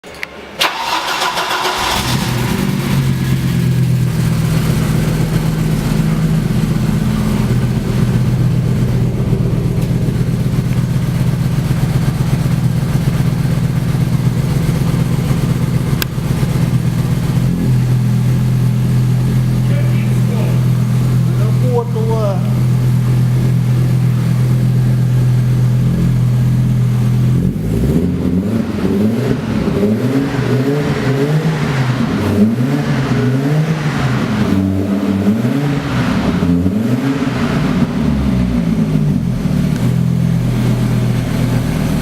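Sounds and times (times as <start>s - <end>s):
car engine starting and idling: 0.0s - 42.0s.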